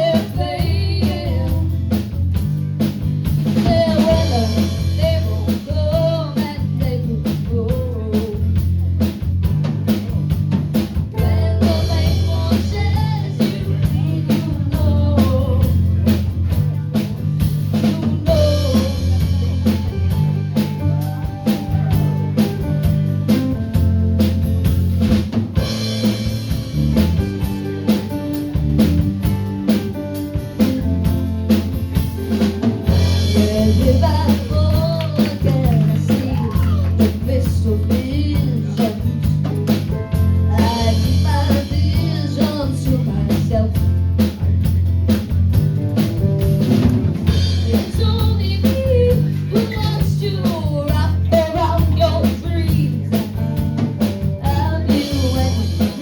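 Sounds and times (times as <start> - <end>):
person singing: 0.0 - 1.8, 3.5 - 8.6, 11.1 - 16.1, 17.7 - 22.9, 32.9 - 39.3, 40.2 - 44.1, 47.5 - 53.4, 54.4 - 56.0
bass guitar: 0.0 - 56.0
drum kit beat: 0.0 - 56.0
electric guitar: 0.0 - 56.0.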